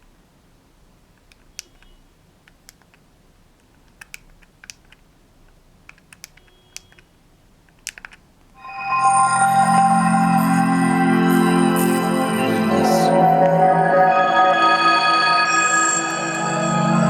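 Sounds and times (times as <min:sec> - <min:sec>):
music player buttons clicking: 0:01.2 - 0:05.1, 0:05.8 - 0:08.6.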